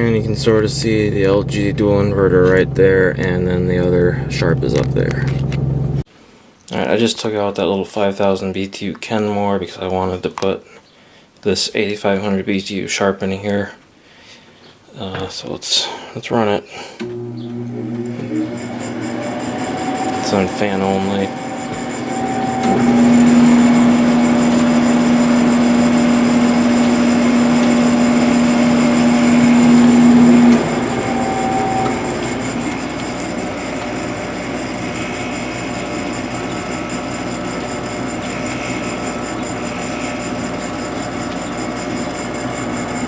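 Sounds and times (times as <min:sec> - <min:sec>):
air conditioner fan blowing: 0:00.0 - 0:06.0, 0:17.0 - 0:43.0
strong low hum: 0:00.0 - 0:06.1, 0:17.2 - 0:37.7.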